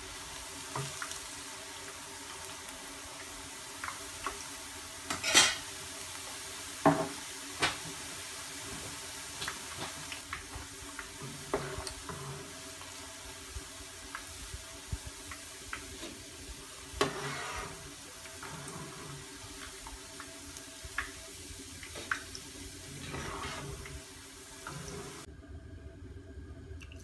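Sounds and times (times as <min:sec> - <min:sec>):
frying in oil sizzle: 0:00.0 - 0:25.3
metal spoon scraping a pan: 0:16.9 - 0:19.4, 0:23.0 - 0:24.0.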